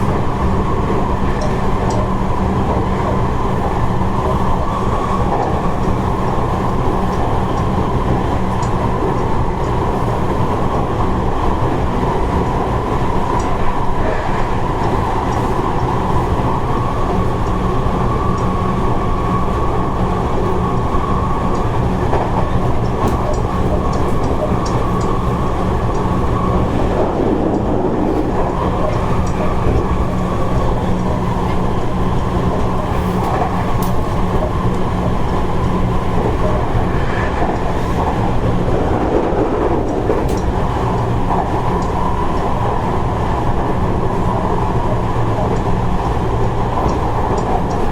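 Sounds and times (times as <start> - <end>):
electric train motor hum: 0.0 - 47.9
train rolling noise: 0.0 - 47.9.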